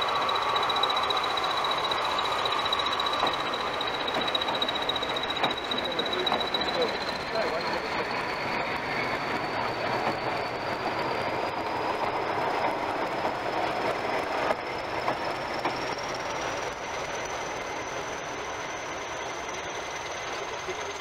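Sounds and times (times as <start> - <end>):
high whine rising in pitch: 0.0 - 14.6
wheels clattering on track: 0.0 - 21.0.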